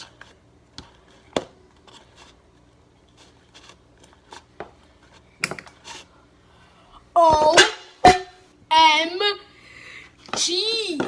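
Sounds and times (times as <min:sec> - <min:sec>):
slime being stirred: 0:00.0 - 0:06.1.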